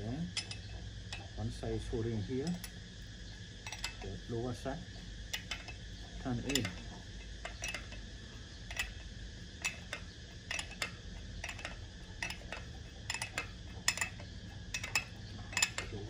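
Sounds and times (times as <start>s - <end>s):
wrenches clinking on bolt: 0.0s - 1.3s, 3.7s - 4.2s, 5.3s - 8.0s, 8.6s - 9.0s, 9.6s - 16.0s.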